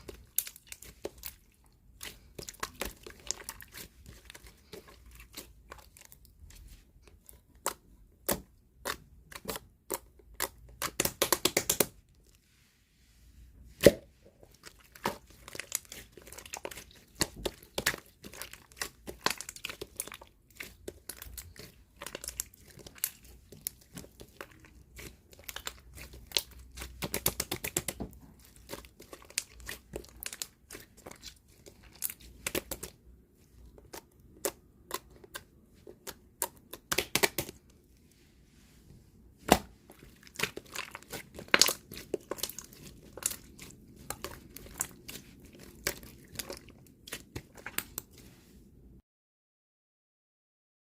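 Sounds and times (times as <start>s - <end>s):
slime squished by hand: 0.0s - 12.4s, 13.7s - 37.8s, 39.4s - 48.4s
wet clicks and crackling pops: 7.5s - 11.9s, 33.8s - 37.7s, 39.5s - 48.1s.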